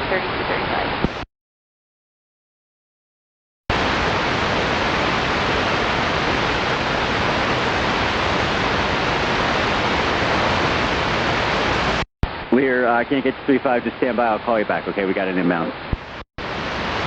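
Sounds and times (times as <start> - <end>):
radio static hiss: 3.7 - 17.0.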